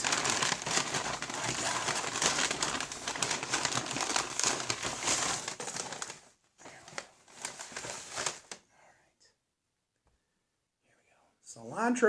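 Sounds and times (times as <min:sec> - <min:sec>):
takeout packaging crinkling: 0:00.0 - 0:08.6.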